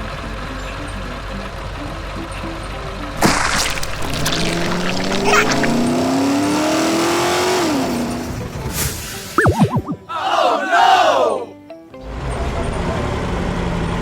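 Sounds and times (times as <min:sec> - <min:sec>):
vehicle engine revving: 0:05.6 - 0:08.6.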